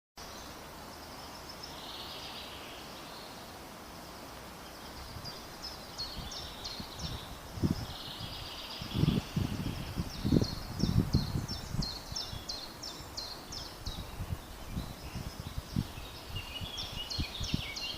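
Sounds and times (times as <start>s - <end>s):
birds chirping: 0.2s - 17.9s.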